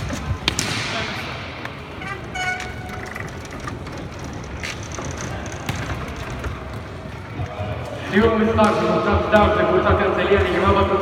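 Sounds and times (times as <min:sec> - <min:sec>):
hockey sticks and puck clacking: 0:00.0 - 0:07.5
rink background noise: 0:00.0 - 0:11.0.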